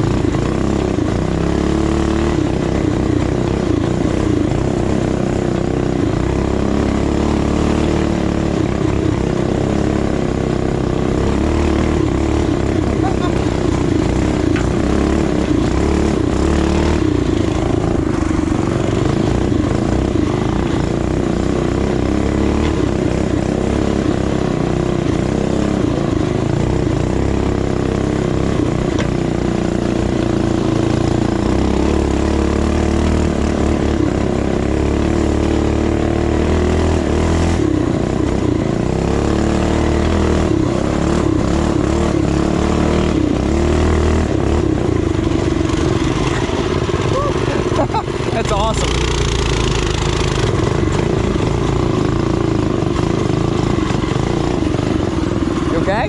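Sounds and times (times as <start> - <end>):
minibike engine running: 0.0 - 56.0
wind and road noise: 0.0 - 56.0.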